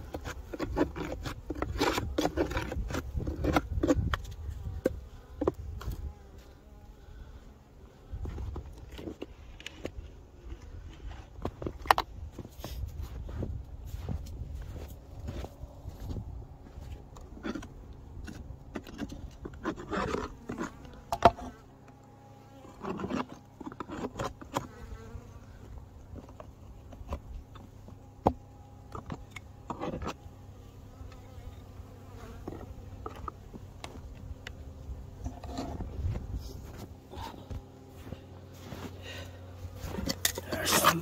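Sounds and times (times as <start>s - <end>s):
honey bees buzzing: 0.0s - 10.8s, 14.6s - 41.0s
handling noises: 35.2s - 41.0s.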